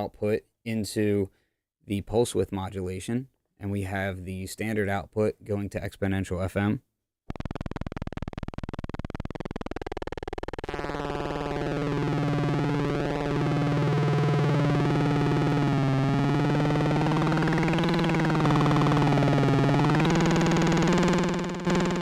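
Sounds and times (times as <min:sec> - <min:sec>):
synthesizer buzzing tone: 0:07.3 - 0:22.0.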